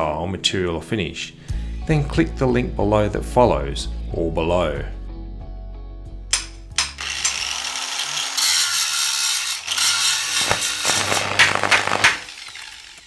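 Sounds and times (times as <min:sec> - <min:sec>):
mechanical rasping and clicking: 0:06.3 - 0:13.0.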